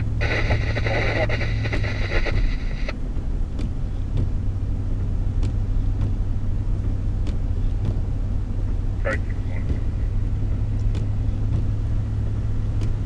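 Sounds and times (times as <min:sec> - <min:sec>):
scanner radio transmission: 0:00.0 - 0:03.0, 0:09.0 - 0:10.2
car driving drone: 0:00.0 - 0:13.0.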